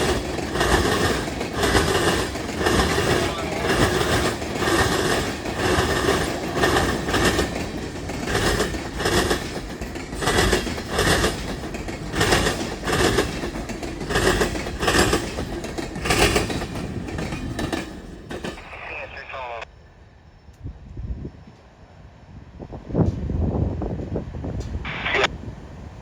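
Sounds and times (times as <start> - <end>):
train wheels clacking on rail joints: 0.0 - 18.7
freight train rolling rumble: 0.0 - 26.0.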